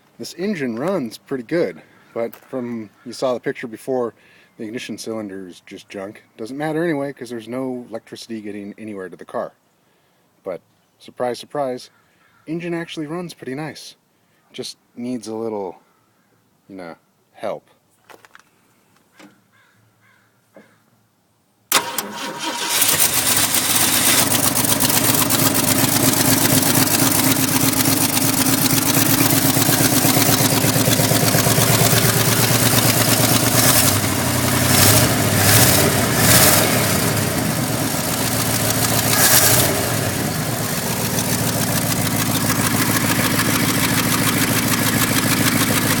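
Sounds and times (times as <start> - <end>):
car engine idling and revving: 22.5 - 46.0.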